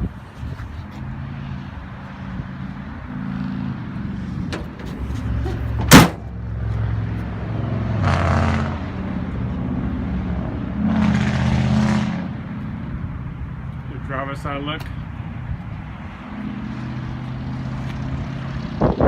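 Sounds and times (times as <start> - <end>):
vehicle running: 0.2 - 19.0
loud slam: 5.8 - 6.2.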